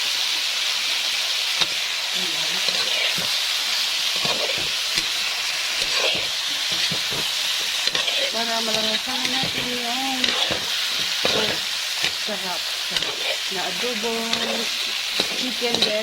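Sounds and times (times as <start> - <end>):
food sizzling in hot oil: 0.0 - 16.0
utensil clicking against a pan: 14.3 - 16.0.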